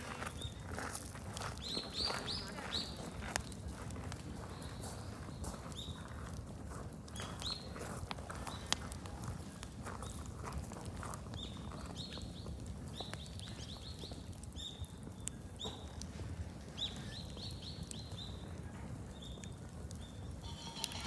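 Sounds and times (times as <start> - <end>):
bonfire crackling and popping: 0.0 - 21.0
bird chirping: 20.4 - 21.0.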